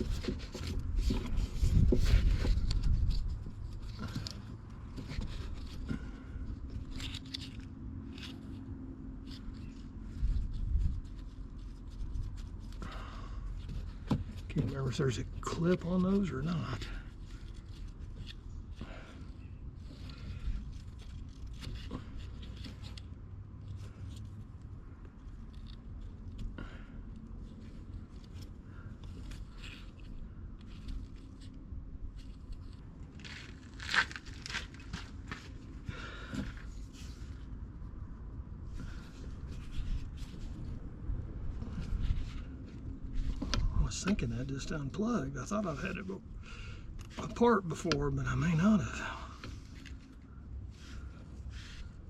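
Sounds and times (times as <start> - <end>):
small clicks and scrapes: 0.0 - 12.9, 13.5 - 37.5
low steady rumble: 0.0 - 52.0.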